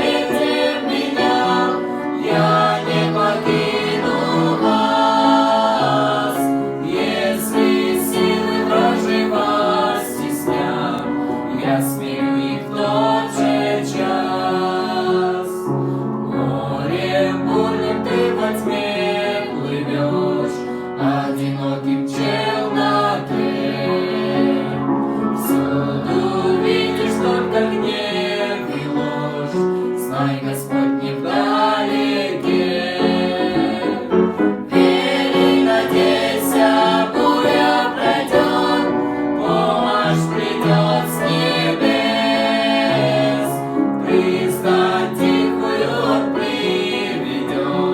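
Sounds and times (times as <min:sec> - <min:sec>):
sustained accompaniment: 0:00.0 - 0:14.8, 0:32.6 - 0:47.8
choral singing: 0:00.0 - 0:47.9.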